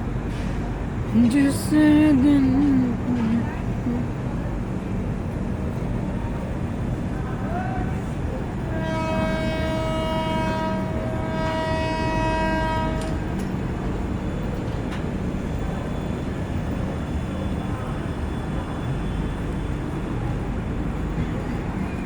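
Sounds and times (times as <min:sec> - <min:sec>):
train rumbling: 0:00.0 - 0:22.0
train horn blast: 0:08.5 - 0:13.8.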